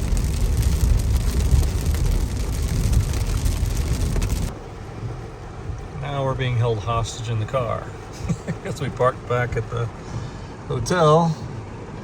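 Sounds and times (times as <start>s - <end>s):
hard rain on car: 0.0s - 5.6s
road and engine rumble: 0.0s - 12.0s.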